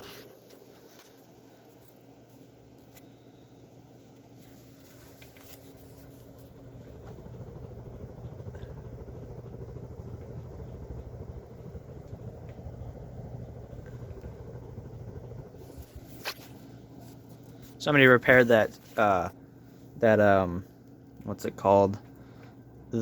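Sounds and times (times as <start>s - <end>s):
ceiling fan motor humming: 0.0s - 23.0s.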